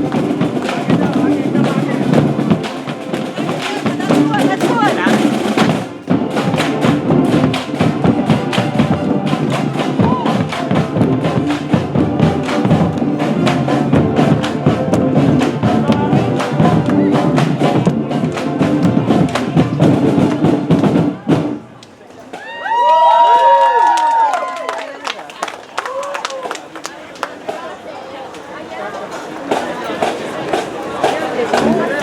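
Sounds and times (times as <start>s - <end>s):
brass instruments sustained notes: 0.0s - 21.7s
drumline beating quick rhythm: 0.0s - 21.8s, 29.1s - 32.0s.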